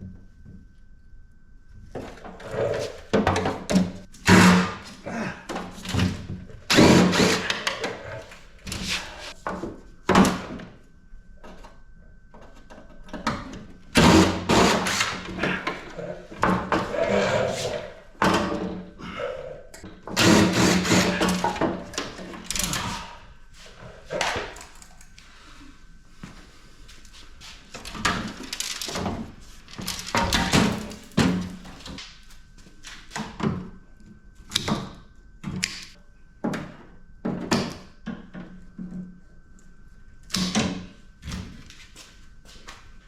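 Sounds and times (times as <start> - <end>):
power driver running: 6.7 - 9.2, 13.8 - 16.0, 19.8 - 23.2.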